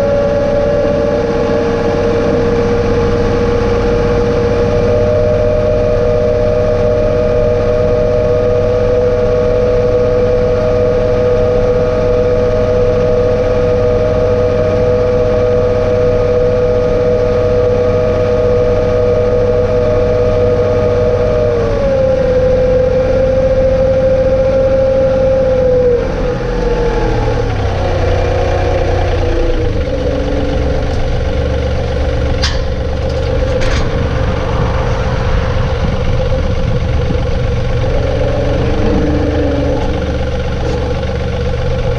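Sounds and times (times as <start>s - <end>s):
tractor diesel engine whining: 0.0s - 41.9s
sharp metal clanks: 32.3s - 34.4s.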